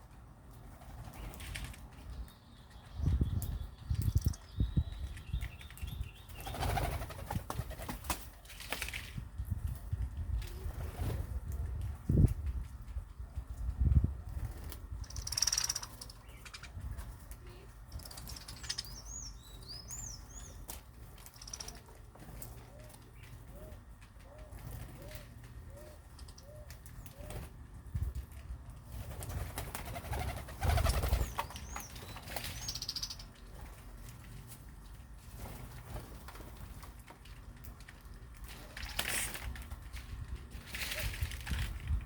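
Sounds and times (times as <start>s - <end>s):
wing flapping and rustling: 0.4s - 2.3s, 3.0s - 18.9s, 20.5s - 42.0s
birds chirping high: 0.6s - 8.0s, 14.9s - 27.6s, 29.7s - 33.6s.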